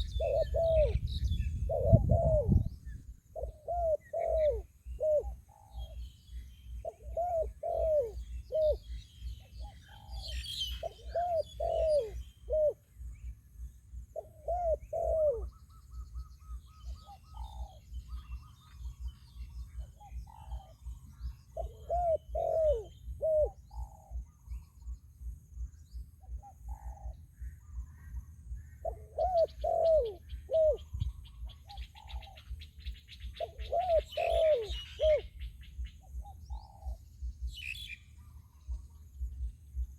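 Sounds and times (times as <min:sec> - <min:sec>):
doves cooing: 0:00.0 - 0:01.0, 0:01.6 - 0:02.7, 0:03.3 - 0:06.0, 0:06.8 - 0:12.9, 0:14.2 - 0:25.0, 0:26.2 - 0:39.9
small birds chirping: 0:00.0 - 0:39.9
low steady rumble: 0:12.1 - 0:29.2, 0:34.7 - 0:39.9.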